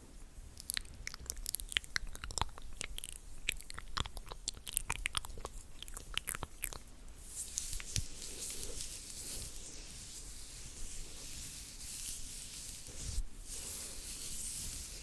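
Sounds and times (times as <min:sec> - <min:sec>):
soft rubbing on microphone: 0:07.2 - 0:15.0.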